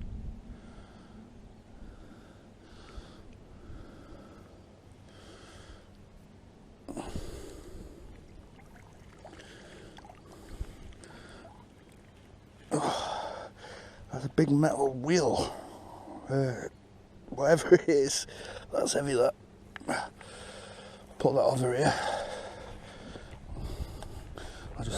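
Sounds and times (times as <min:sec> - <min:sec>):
man breathing hard: 0:00.5 - 0:06.0, 0:06.9 - 0:08.2, 0:09.4 - 0:11.7, 0:12.7 - 0:14.1, 0:19.9 - 0:21.2, 0:21.8 - 0:24.8.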